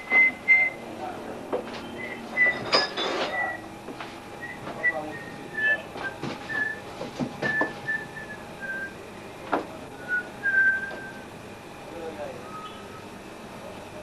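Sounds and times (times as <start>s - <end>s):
person whistling a tune: 6.5s - 6.8s, 7.4s - 9.0s, 10.0s - 11.2s.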